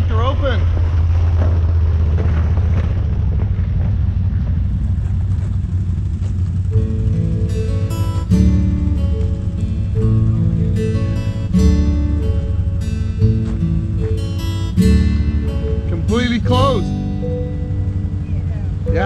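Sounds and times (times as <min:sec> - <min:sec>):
atv engine running: 0:00.0 - 0:19.0
strummed acoustic guitar music: 0:06.7 - 0:19.0.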